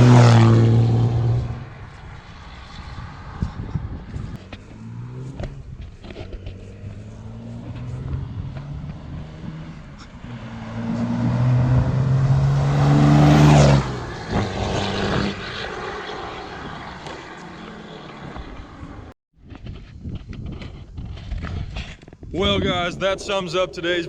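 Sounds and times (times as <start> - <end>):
diesel engine accelerating: 0.0 - 19.2.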